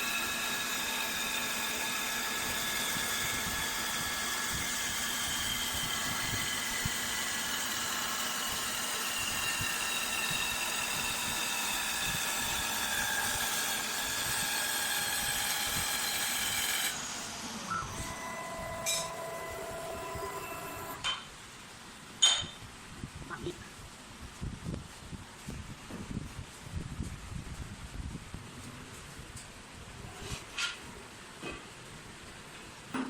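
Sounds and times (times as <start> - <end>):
cnc machine whine: 0.0 - 21.0.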